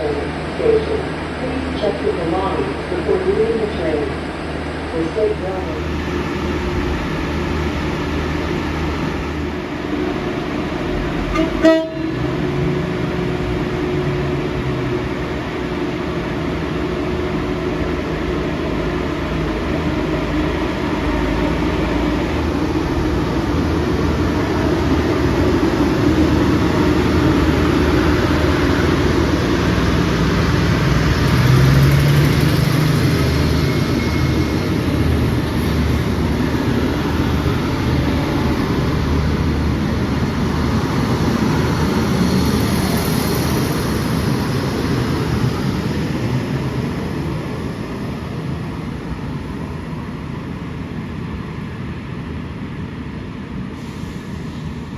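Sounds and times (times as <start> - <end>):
diesel train engine drone: 0.0 - 54.9
train horn toot: 11.3 - 12.4.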